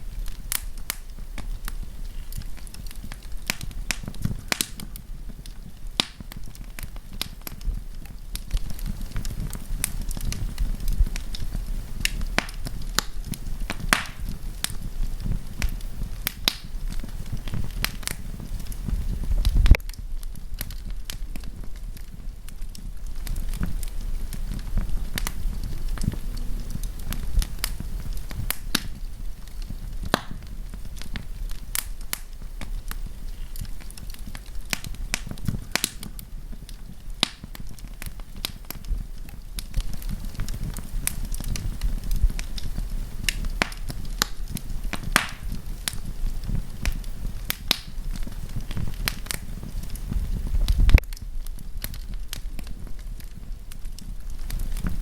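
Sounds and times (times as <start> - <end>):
campfire crackling and popping: 0.0 - 55.0
low rumble of fire: 0.0 - 55.0.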